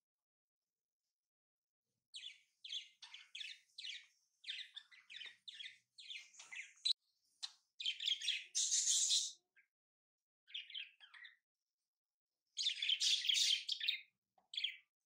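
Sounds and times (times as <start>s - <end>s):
birds chirping: 2.1s - 9.7s, 10.5s - 11.4s, 12.6s - 15.0s.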